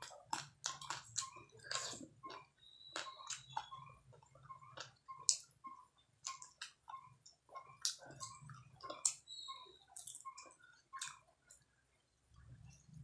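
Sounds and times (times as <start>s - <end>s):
person biting and chewing: 0.0s - 2.4s.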